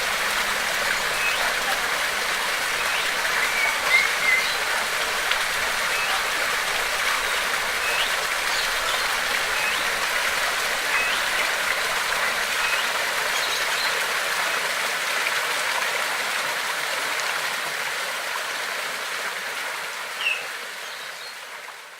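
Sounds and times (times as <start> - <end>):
water rushing: 0.0 - 21.9
bird chirping: 2.8 - 4.8.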